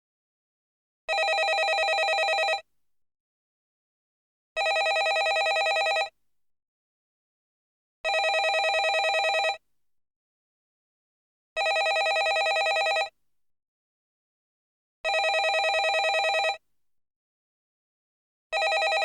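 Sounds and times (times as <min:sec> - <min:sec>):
telephone ringing: 0:01.1 - 0:02.6, 0:04.6 - 0:06.1, 0:08.1 - 0:09.6, 0:11.6 - 0:13.1, 0:15.1 - 0:16.6, 0:18.6 - 0:19.0.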